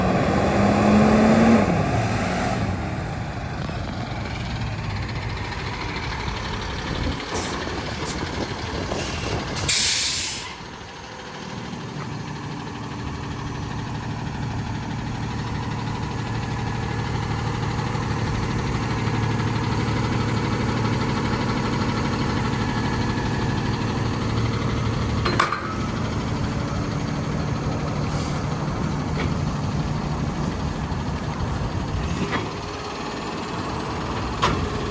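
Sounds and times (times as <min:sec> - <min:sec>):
truck diesel engine idling: 0:00.0 - 0:34.9
loud air hiss: 0:08.9 - 0:10.6.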